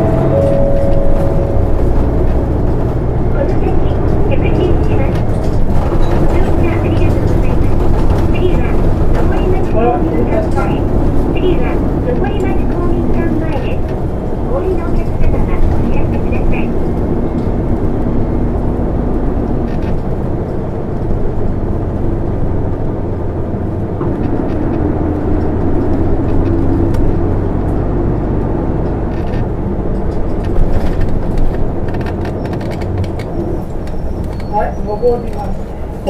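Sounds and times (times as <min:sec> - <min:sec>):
rattles and knocks: 0:00.0 - 0:18.1
bus diesel engine hum: 0:00.0 - 0:36.0
road noise: 0:00.0 - 0:36.0.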